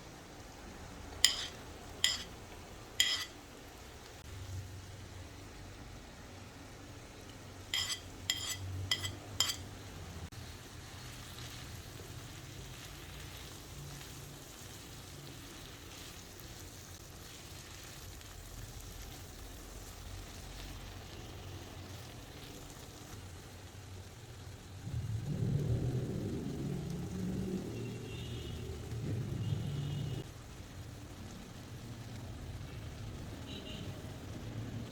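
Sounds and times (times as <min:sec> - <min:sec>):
food sizzling in oil: 0:00.0 - 0:25.3
utensil clinking on pan: 0:01.2 - 0:02.4, 0:03.0 - 0:03.4, 0:07.3 - 0:09.7.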